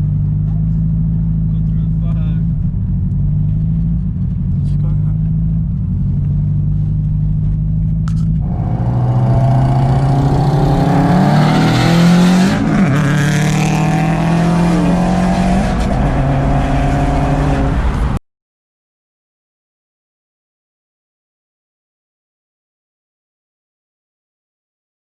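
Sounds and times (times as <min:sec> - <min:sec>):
car engines running: 0:00.0 - 0:18.2
engine revving: 0:00.0 - 0:18.2.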